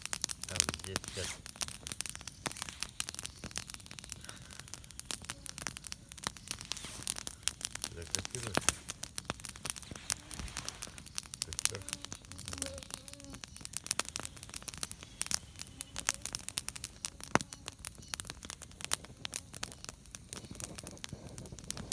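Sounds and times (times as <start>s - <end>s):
campfire crackling and popping: 0.0s - 21.9s
faint voice murmuring: 9.9s - 13.0s.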